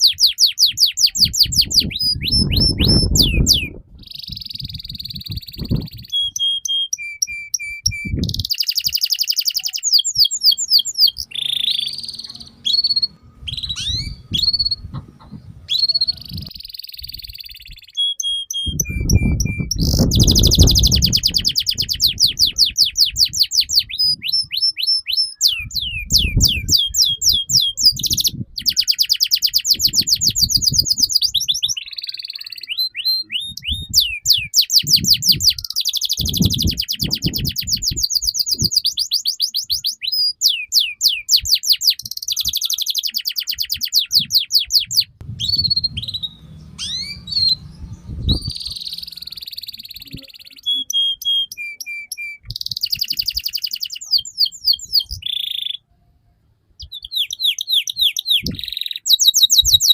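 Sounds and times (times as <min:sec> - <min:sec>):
canary singing trills: 0:00.0 - 0:55.9, 0:56.8 - 0:59.9
dull low thumps: 0:01.3 - 0:04.0, 0:12.8 - 0:15.7, 0:44.9 - 0:49.2.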